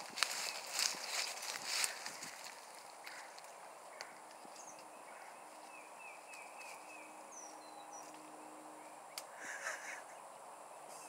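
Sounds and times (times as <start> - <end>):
bird chirps: 3.0 - 11.0.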